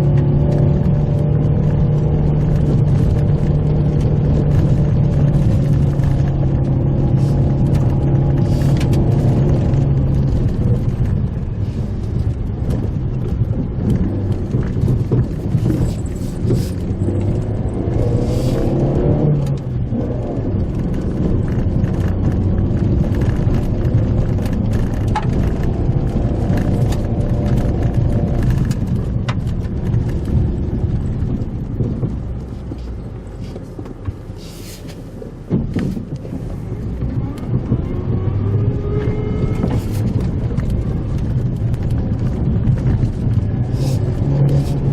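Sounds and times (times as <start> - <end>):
car engine driving: 0.0 - 44.9
tyre rumble: 0.0 - 44.9
light rattles and knocks: 7.5 - 18.7, 20.6 - 38.3.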